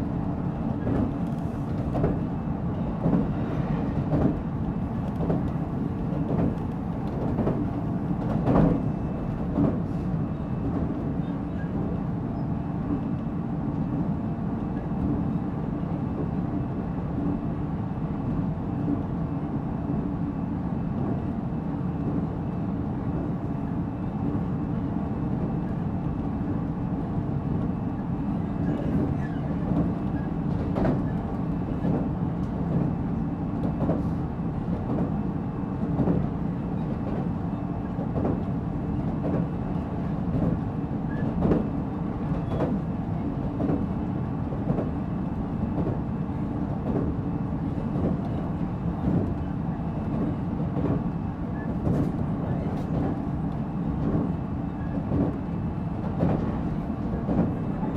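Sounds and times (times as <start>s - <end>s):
train interior rumble: 0.0s - 57.9s
rail joint clicks: 0.6s - 12.5s, 28.6s - 33.0s, 33.6s - 35.2s, 35.8s - 46.0s, 46.6s - 57.9s.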